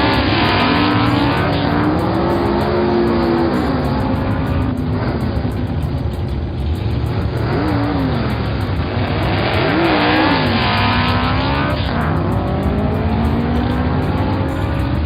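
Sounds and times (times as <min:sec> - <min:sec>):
background music: 0:00.0 - 0:15.0
cartoon engine revving effect: 0:07.4 - 0:15.0.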